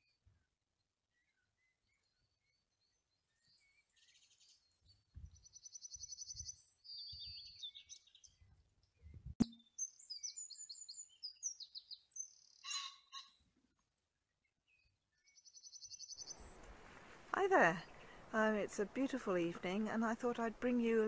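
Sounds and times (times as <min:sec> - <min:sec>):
songbirds singing: 0:00.0 - 0:13.4, 0:14.3 - 0:21.0.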